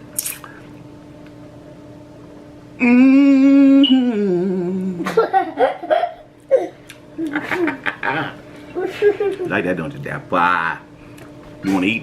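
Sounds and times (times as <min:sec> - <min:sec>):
man mumbling: 0:02.8 - 0:05.0
man humming: 0:02.8 - 0:05.3.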